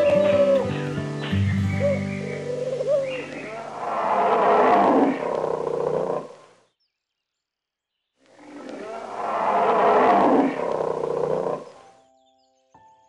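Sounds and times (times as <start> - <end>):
long animal call: 1.9 - 6.4, 8.4 - 11.8.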